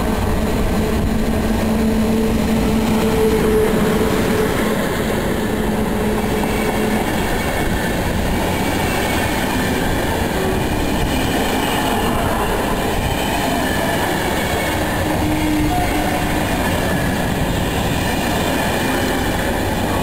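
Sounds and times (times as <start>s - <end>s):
train wheels rushing on rails: 0.0s - 20.0s.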